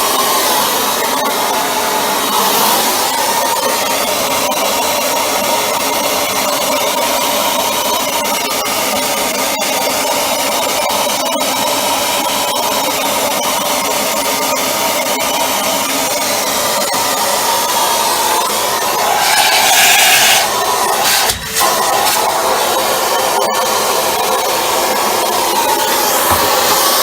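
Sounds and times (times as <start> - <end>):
vacuum cleaner air rush and whine: 17.4 - 27.0.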